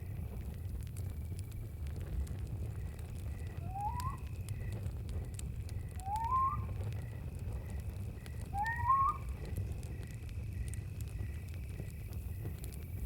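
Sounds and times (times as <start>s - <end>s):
campfire burning: 0.0s - 13.0s
rising whistled call: 3.6s - 4.3s, 6.0s - 6.8s, 8.6s - 9.4s.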